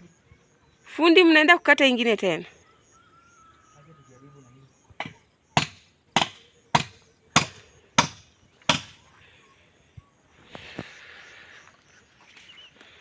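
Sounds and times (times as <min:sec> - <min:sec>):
blade chopping tree trunk: 0:05.0 - 0:09.0
faint noisy rustle: 0:10.4 - 0:13.0.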